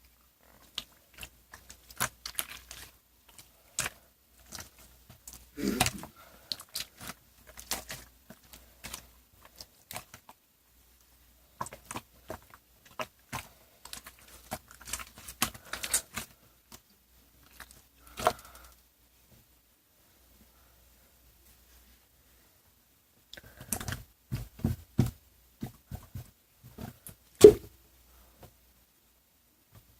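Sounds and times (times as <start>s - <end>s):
rustling and crinkling handling: 0.0s - 19.6s.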